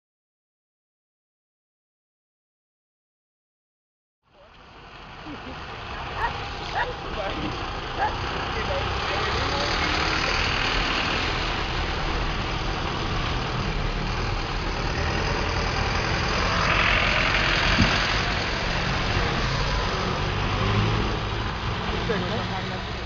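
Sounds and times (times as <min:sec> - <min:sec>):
bus diesel engine rumble: 0:04.3 - 0:23.0.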